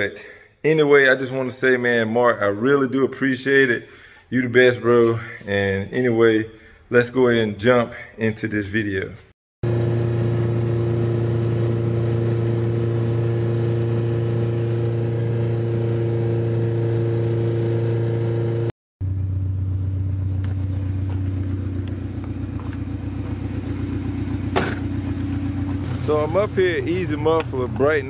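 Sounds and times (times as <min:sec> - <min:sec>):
car engine droning: 0:09.6 - 0:28.0.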